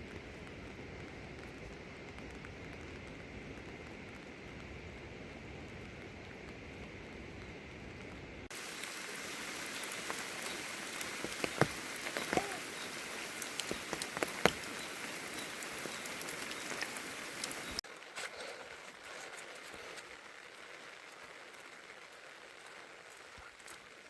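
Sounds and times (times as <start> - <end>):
dull low steady noise: 0.0 - 8.5
heavy rain falling: 0.0 - 24.0.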